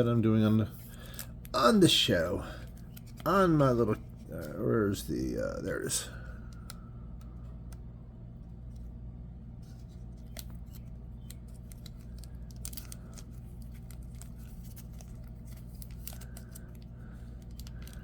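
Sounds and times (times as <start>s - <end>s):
steady low hum: 0.0s - 18.0s
plastic sleeve crinkling: 2.4s - 4.6s, 9.6s - 18.0s.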